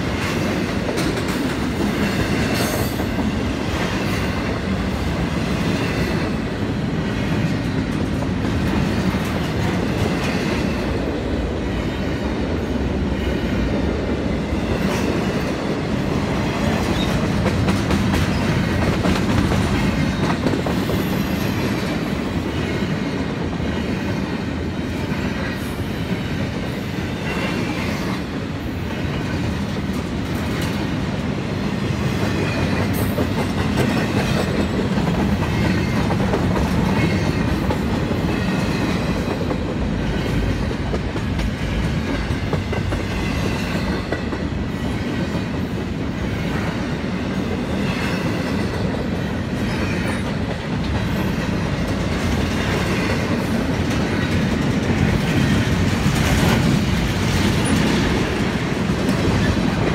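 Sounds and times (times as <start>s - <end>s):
steel wheels rolling on rails: 12.2s - 59.9s.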